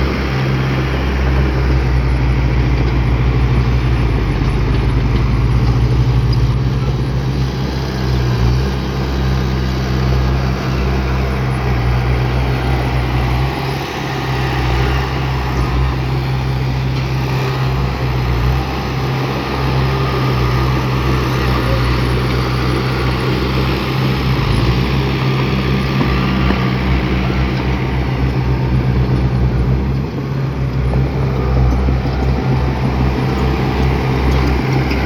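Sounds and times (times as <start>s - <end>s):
heavy diesel engine running: 0.0s - 35.0s.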